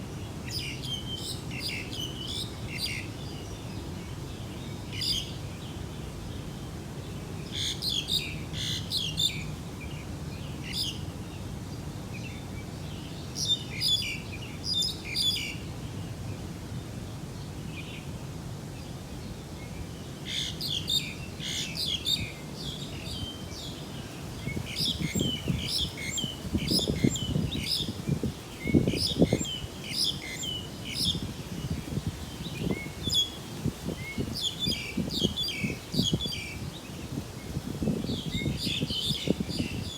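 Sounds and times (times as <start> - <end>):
small birds chirping: 18.8 - 39.9.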